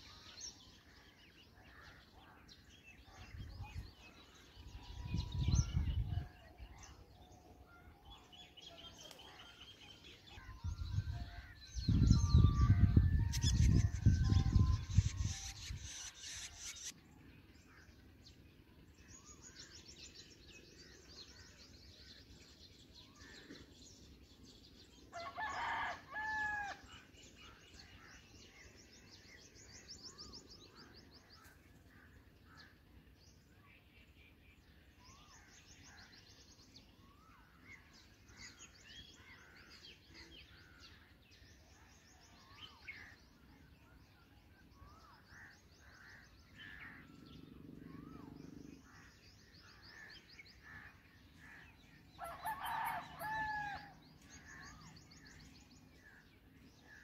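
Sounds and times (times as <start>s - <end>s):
faint bird chirps and trills: 0.0s - 57.0s
loud long bird call: 47.8s - 55.4s.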